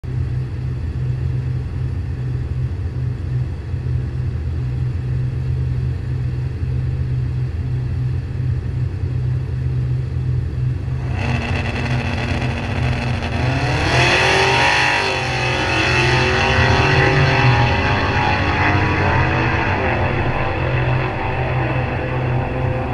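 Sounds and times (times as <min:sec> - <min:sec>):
car engine lumpy idle: 0:00.0 - 0:14.5
engine revving up: 0:10.9 - 0:22.9.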